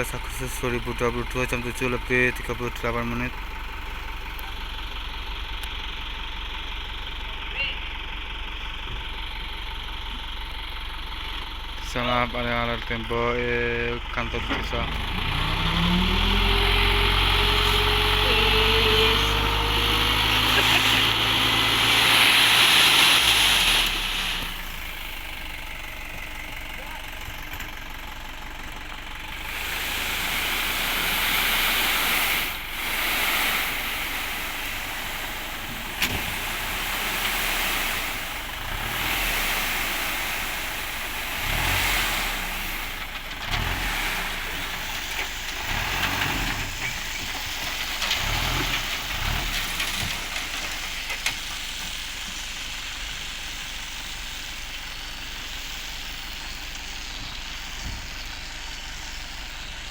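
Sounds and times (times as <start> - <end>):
dump truck engine running: 0.0 - 59.9
rushes of hissing noise: 29.3 - 46.7.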